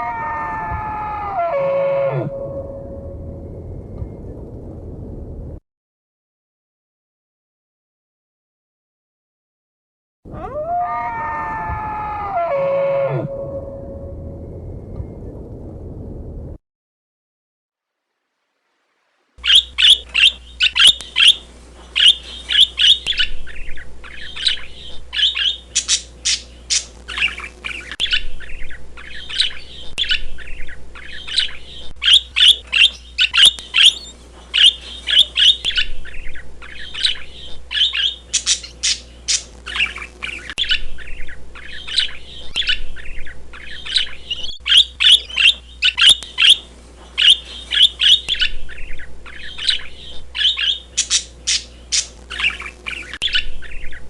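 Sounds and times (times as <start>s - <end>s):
birds chirping and squawking: 0.0s - 3.0s, 10.4s - 14.0s, 19.4s - 54.0s
faint steady hum: 0.0s - 5.6s, 10.4s - 16.6s, 19.4s - 54.0s.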